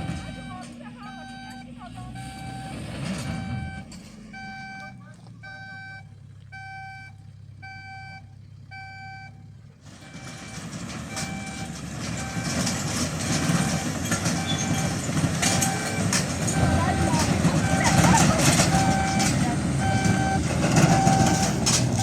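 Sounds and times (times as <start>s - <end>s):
low engine rumble: 0.0s - 22.0s
reversing alarm beeping: 0.0s - 22.0s.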